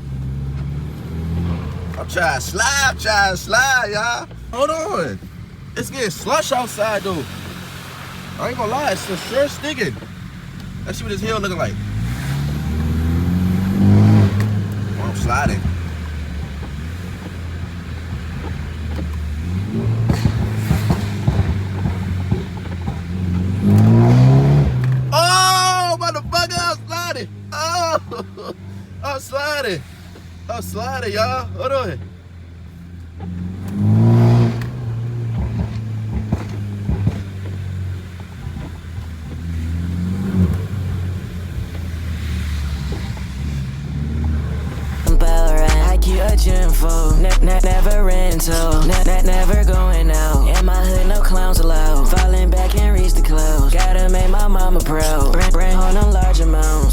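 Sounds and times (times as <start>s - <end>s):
car engine running: 0.0s - 56.9s.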